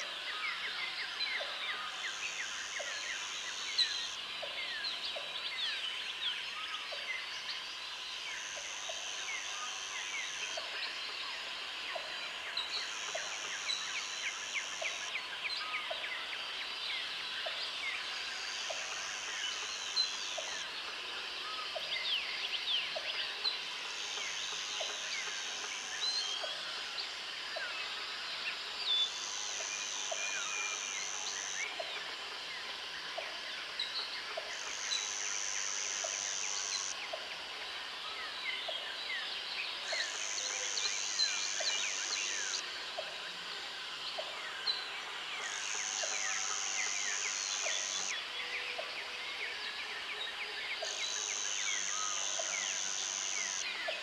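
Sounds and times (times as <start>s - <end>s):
insects and crickets chorus: 0.0s - 54.0s
high insect buzz: 34.5s - 37.0s, 51.0s - 53.6s.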